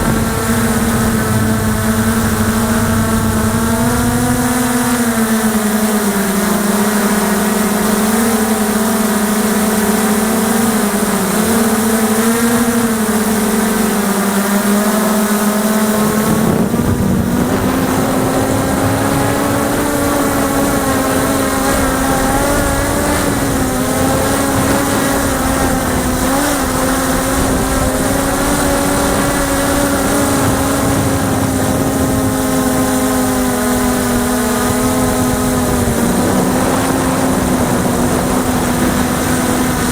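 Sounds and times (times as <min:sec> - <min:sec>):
low rumble of wind: 0:00.0 - 0:05.4, 0:16.0 - 0:39.9
multicopter propellers droning: 0:00.0 - 0:39.9.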